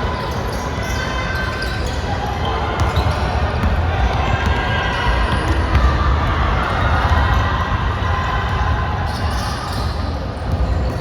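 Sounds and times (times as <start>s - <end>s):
basketball bouncing: 2.8s - 7.4s.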